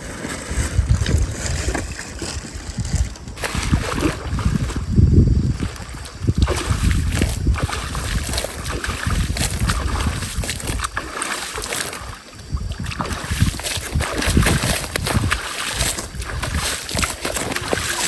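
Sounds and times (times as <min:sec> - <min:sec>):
wind buffeting microphone: 0:00.6 - 0:18.0
stream water rushing: 0:05.7 - 0:18.0.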